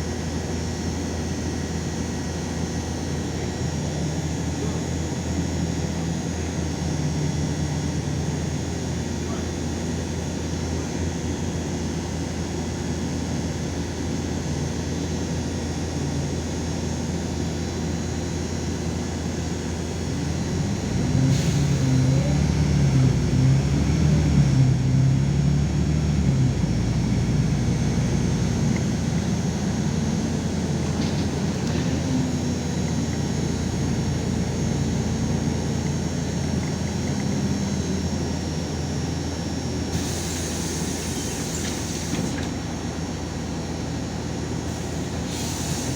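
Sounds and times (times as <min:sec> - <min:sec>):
bus engine drone: 0:00.0 - 0:45.9
road noise: 0:19.7 - 0:45.9.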